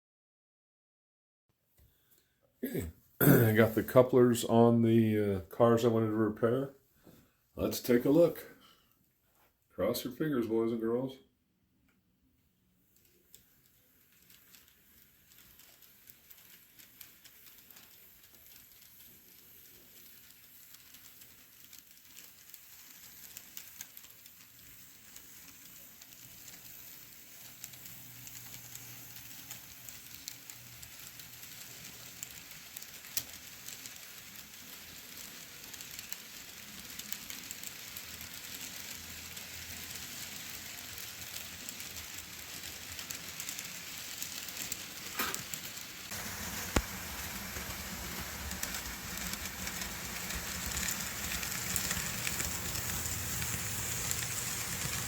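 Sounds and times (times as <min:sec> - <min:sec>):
model train wheels clicking: 0:12.8 - 0:55.0.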